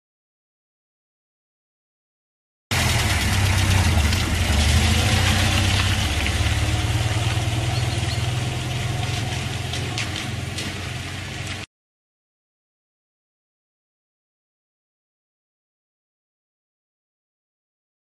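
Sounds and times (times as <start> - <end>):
vehicle engine running: 2.7 - 11.7.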